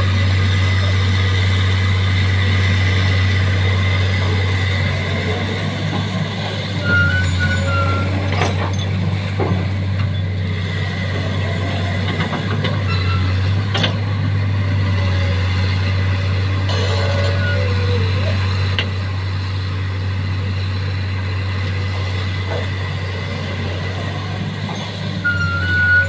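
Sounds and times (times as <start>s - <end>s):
excavator engine humming: 0.0s - 26.0s
short high squeaks: 6.8s - 8.9s, 12.8s - 13.4s, 24.8s - 26.0s.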